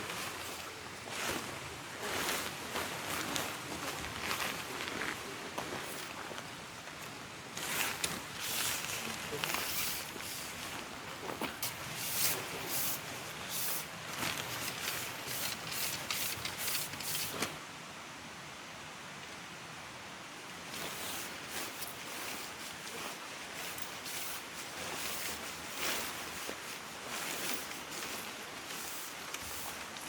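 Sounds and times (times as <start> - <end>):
crisp rustling: 7.6 - 17.6, 20.7 - 30.0.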